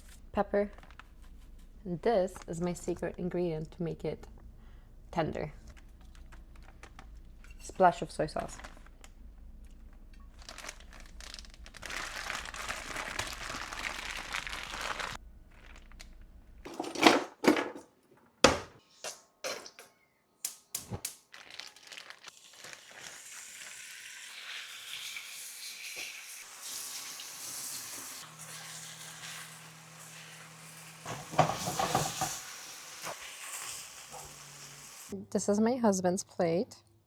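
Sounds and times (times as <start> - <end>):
plastic bag crinkling: 10.2 - 16.3, 21.1 - 23.2
chicken sizzling in a pan: 22.3 - 35.2.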